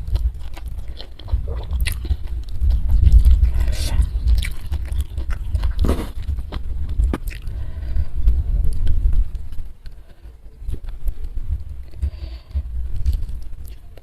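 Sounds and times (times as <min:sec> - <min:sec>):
wet mouth clicks and crunches: 0:00.0 - 0:07.5
chewing and biting food: 0:00.0 - 0:14.0
low rumble: 0:00.0 - 0:14.0.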